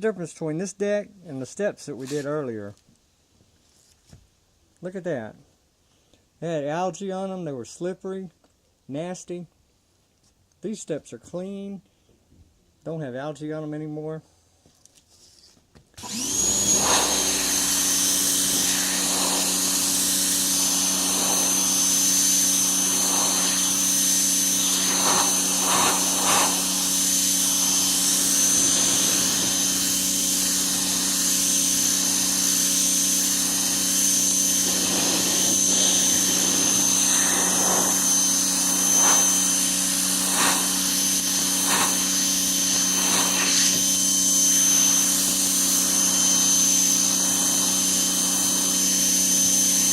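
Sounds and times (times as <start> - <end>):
pressure washer motor humming: 16.0 - 49.9
water jet spraying wood: 16.0 - 49.9.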